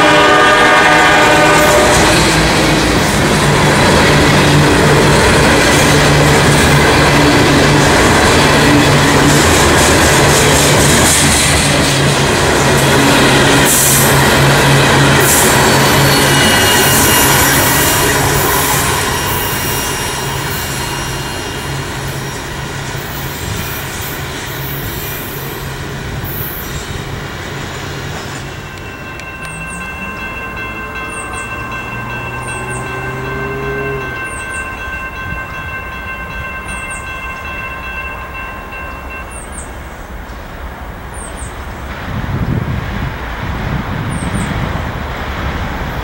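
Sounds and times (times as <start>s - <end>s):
freight train rolling past: 0.0s - 46.0s
wheels squealing: 1.6s - 37.8s
steady high tones: 12.6s - 39.9s.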